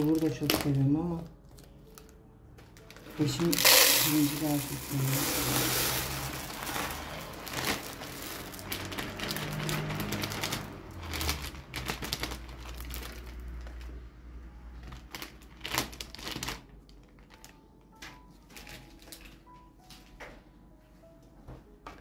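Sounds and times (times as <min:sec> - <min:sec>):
rice grains poured into jar: 0:03.0 - 0:11.5.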